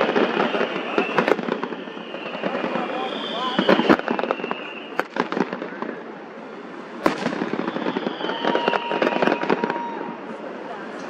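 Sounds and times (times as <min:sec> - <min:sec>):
firework whistle falling in pitch: 0:00.0 - 0:05.2, 0:07.1 - 0:10.2
firework bang: 0:00.0 - 0:06.0, 0:07.0 - 0:10.1
fireworks crackling pops: 0:00.0 - 0:06.3, 0:07.0 - 0:11.0.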